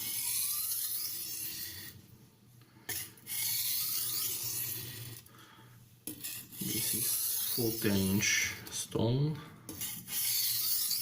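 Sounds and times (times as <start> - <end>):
knife grinding on sharpening stone: 0.0 - 2.0, 2.9 - 5.3, 6.0 - 8.1, 9.7 - 11.0.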